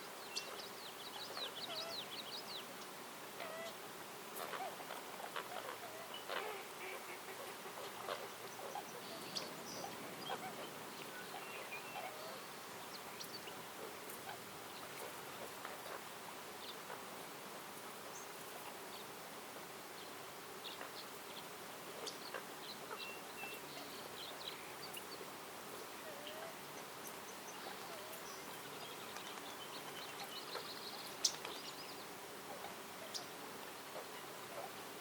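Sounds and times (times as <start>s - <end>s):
steady background hiss: 0.0s - 35.0s
bird chirps and calls: 0.3s - 2.7s, 4.4s - 13.6s.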